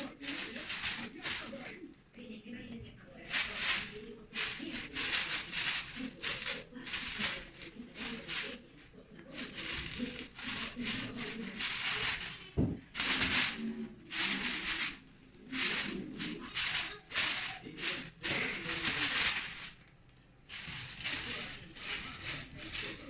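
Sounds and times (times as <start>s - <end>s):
plastic bag rustling and crinkling: 0.0s - 1.8s, 2.8s - 19.9s, 20.5s - 23.0s
thump: 12.6s - 13.3s.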